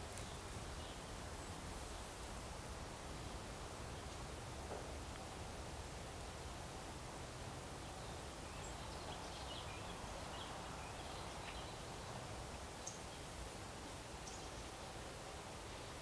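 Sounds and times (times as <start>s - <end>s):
small birds chirping: 7.8s - 13.4s, 14.0s - 14.8s.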